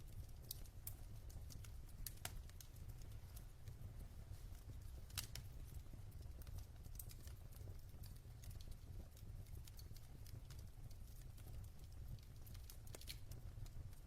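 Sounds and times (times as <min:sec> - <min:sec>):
burning logs crackling and popping: 0:00.0 - 0:14.0
fire flames rumbling: 0:00.0 - 0:14.0.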